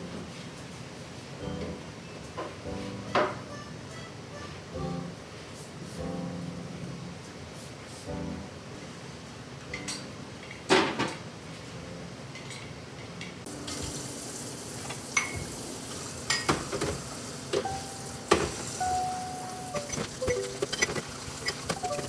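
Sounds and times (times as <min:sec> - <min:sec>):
utensils and dishes clinking: 0:09.7 - 0:11.2, 0:13.5 - 0:22.0.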